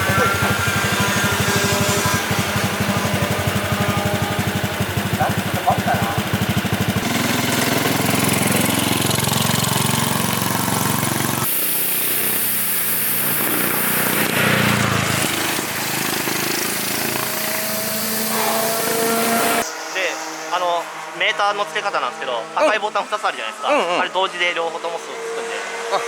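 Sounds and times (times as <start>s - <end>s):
kart engine idling: 0.0s - 11.6s, 12.8s - 18.3s.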